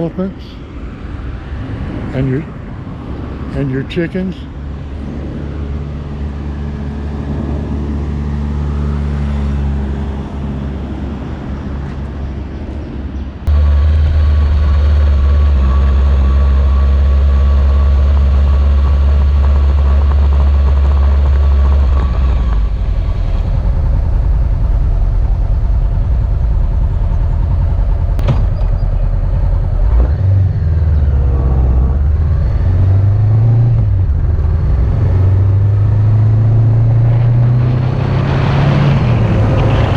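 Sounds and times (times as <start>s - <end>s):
wind rumble on microphone: 0.9s - 13.5s, 19.6s - 39.9s
motorcycle engine running: 13.5s - 36.6s.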